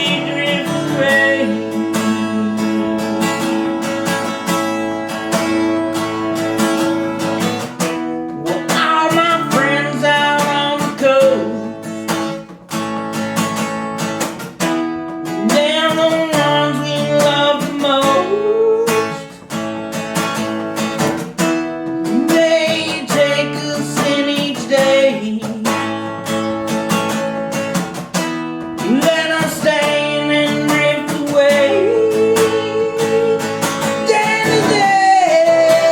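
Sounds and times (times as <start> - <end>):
man singing: 0.0 - 4.2, 7.9 - 12.5, 15.2 - 19.6, 21.7 - 26.7, 28.4 - 35.9
acoustic guitar strumming: 0.0 - 35.9.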